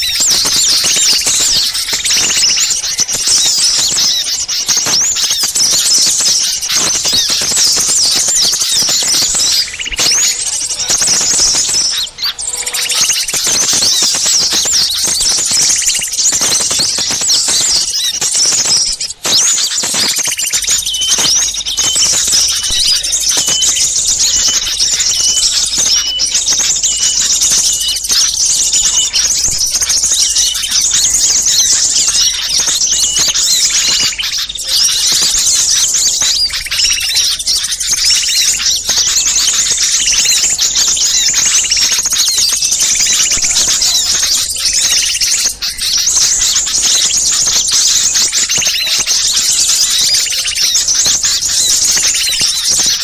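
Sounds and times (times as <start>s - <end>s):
flock of small birds chirping: 0.0s - 53.0s.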